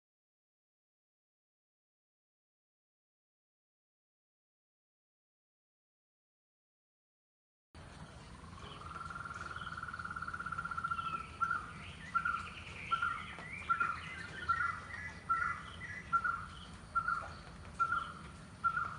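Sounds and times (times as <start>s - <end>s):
faint birds chirping: 7.8s - 18.9s.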